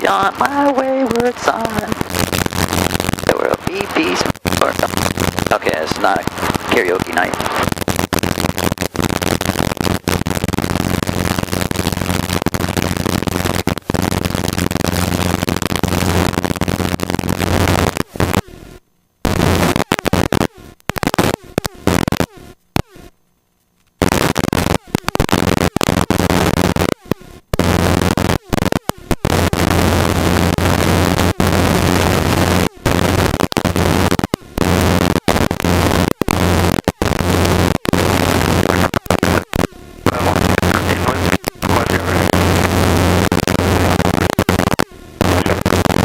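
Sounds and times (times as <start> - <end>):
helicopter cabin noise: 0.0 - 16.2, 40.1 - 43.0.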